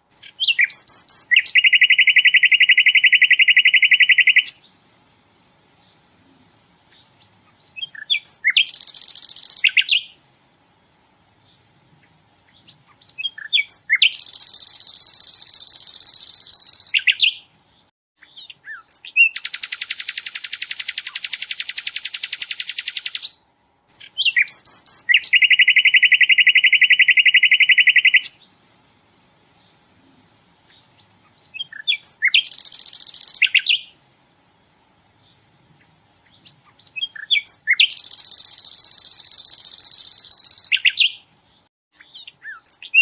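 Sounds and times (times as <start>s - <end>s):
bird short chirps: 0.1s - 4.6s, 6.9s - 10.2s, 12.5s - 17.4s, 18.2s - 23.4s, 24.0s - 28.4s, 31.0s - 34.0s, 36.3s - 41.2s
flycatcher rattling trills: 8.0s - 10.1s, 13.7s - 17.2s, 18.9s - 23.3s, 31.7s - 33.8s, 37.2s - 41.1s.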